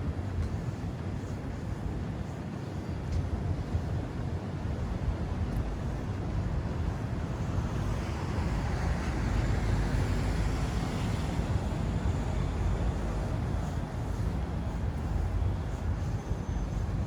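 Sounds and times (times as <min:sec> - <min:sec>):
road traffic rumble: 0:06.7 - 0:17.0.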